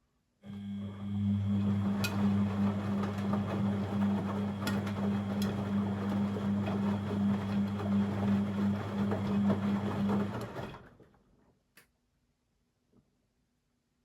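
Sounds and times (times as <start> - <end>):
washing machine churning: 0.6 - 11.0.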